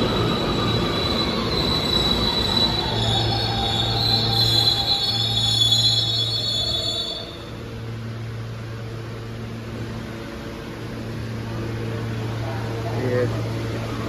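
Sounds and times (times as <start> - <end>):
train wheels squealing: 0.0 - 7.7
low hum from train: 0.0 - 14.0.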